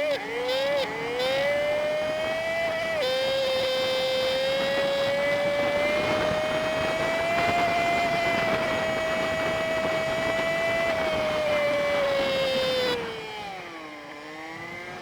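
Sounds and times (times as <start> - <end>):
sped-up engine whine: 0.0 - 15.0.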